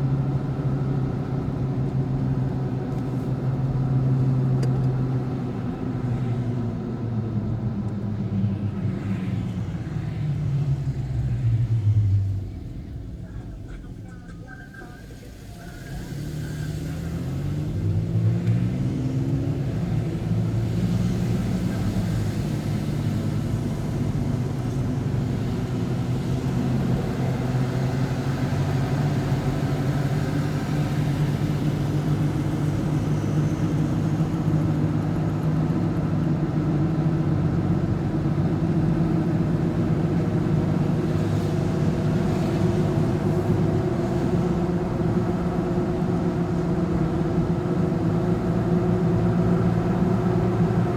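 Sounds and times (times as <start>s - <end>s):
vehicle engine accelerating: 15.2s - 50.9s.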